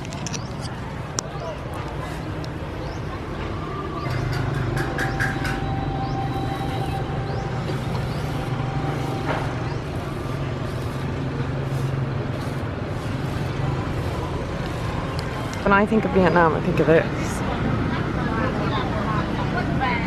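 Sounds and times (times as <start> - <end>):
continuous low hum: 0.0 - 18.1
vehicle engines running: 0.0 - 20.0.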